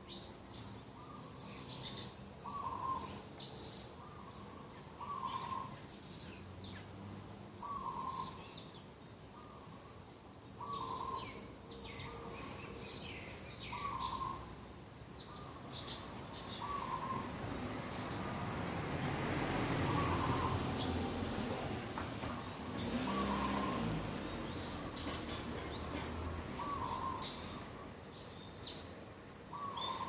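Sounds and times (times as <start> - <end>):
small birds chirping: 0.0 - 30.0
dove cooing: 2.4 - 3.2, 16.6 - 17.3, 19.8 - 20.9, 22.9 - 24.1, 26.6 - 27.6.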